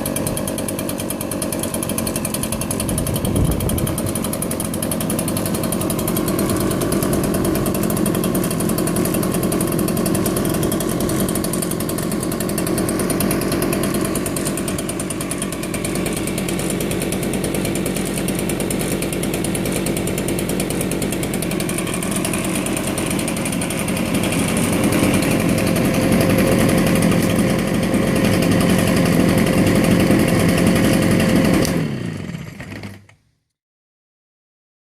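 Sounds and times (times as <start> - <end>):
leaf blower engine running: 0.0 - 33.2.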